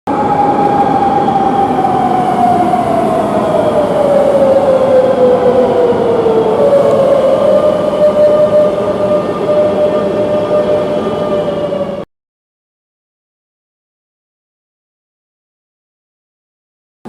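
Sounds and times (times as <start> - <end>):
wheels rumbling on rail: 0.1 - 12.0.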